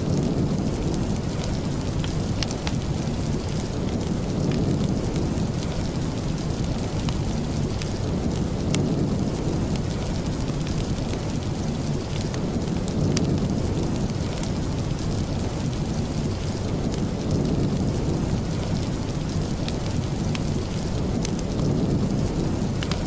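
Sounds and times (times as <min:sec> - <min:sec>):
heavy rain: 0:00.0 - 0:23.0
sharp ticks of raindrops: 0:00.0 - 0:23.0.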